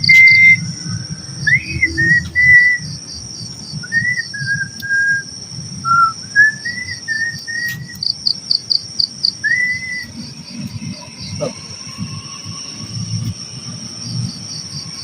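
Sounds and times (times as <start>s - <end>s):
short whistled notes: 0.0s - 0.7s, 1.5s - 2.8s, 5.9s - 8.0s
crickets trilling: 0.0s - 15.0s.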